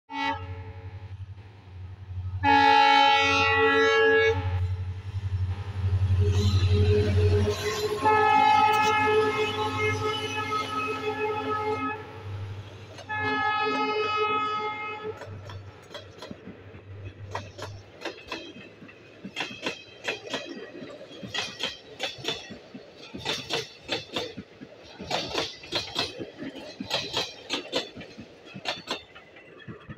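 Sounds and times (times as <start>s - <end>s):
diesel locomotive horn blasts: 0.1s - 0.9s, 2.4s - 4.8s, 5.9s - 12.4s, 13.0s - 15.4s
train wheels clattering over rail joints: 15.2s - 29.9s.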